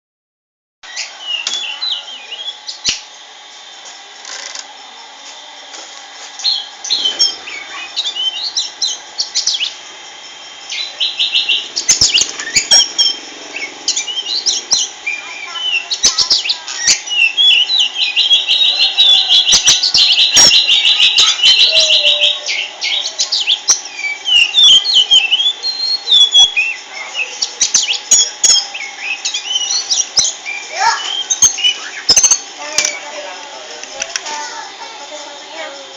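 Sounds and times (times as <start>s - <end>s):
bird singing chirps and whistles: 0.8s - 3.1s, 6.4s - 9.8s, 10.7s - 33.0s
fast rattling bird trills: 6.3s - 35.9s.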